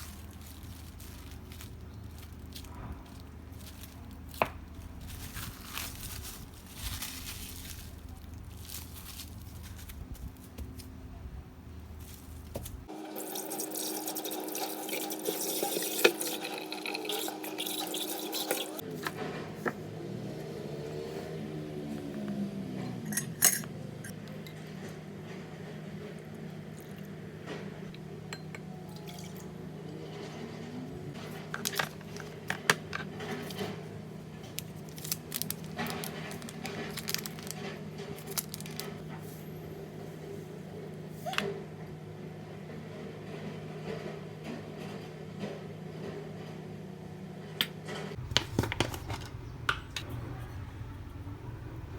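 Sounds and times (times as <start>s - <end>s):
water running from tap: 12.9s - 18.8s.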